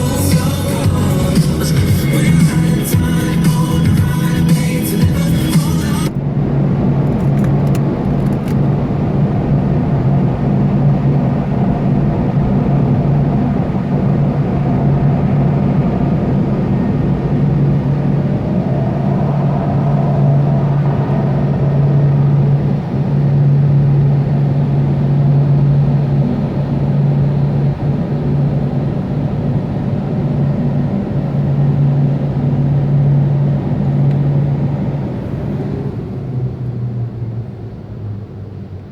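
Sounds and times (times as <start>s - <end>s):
rushing noise: 0.0s - 10.7s, 11.4s - 25.2s
car wash machinery humming: 0.0s - 38.9s.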